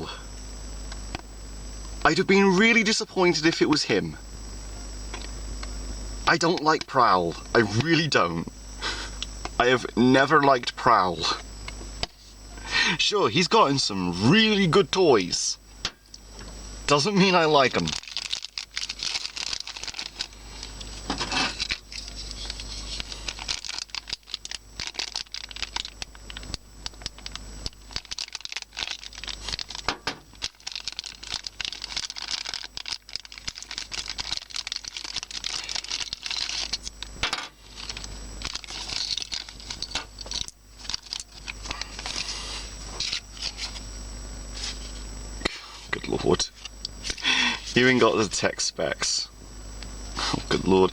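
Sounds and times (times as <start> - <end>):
packaging crinkling and tearing: 16.9 - 43.8.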